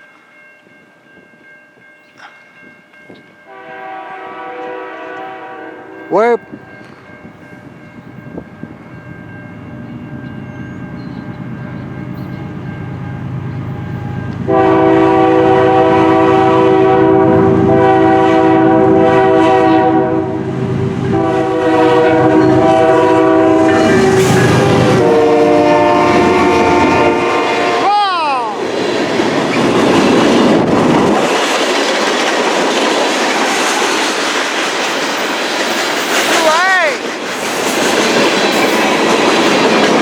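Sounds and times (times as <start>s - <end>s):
locomotive air horn blasts: 3.5s - 6.0s, 14.5s - 27.9s
diesel locomotive rumble: 9.3s - 40.0s.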